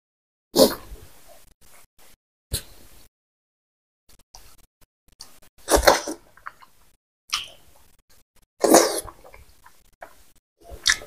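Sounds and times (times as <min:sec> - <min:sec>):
wet chewing and lip smacks: 0:06.4 - 0:07.6, 0:10.8 - 0:11.0.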